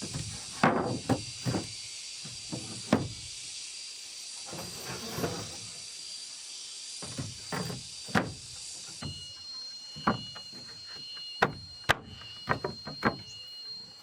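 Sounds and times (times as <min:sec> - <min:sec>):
thin high tone: 0:08.8 - 0:14.0.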